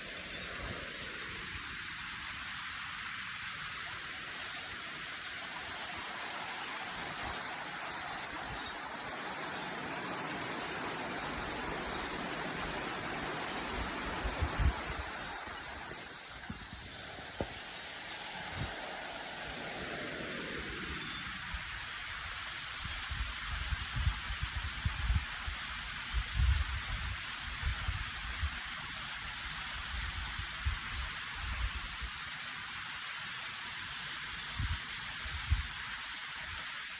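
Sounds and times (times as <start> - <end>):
waterfall rushing: 0.0 - 22.6.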